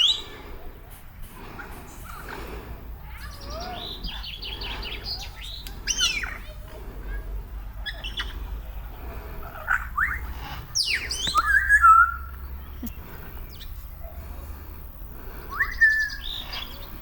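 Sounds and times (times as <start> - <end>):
birds whistling rising calls: 0.0 - 0.8, 1.9 - 6.5, 7.8 - 17.0.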